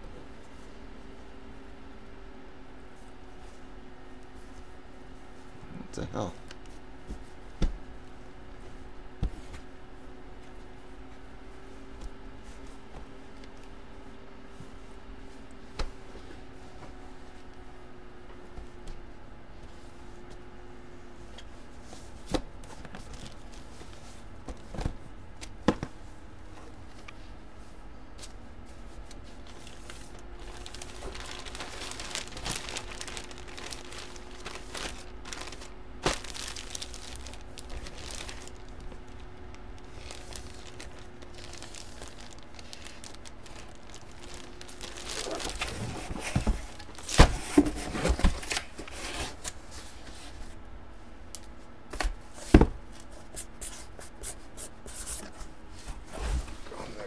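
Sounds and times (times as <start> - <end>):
faint steady hum: 0.0 - 57.0
packaging crinkling and tearing: 29.4 - 49.5.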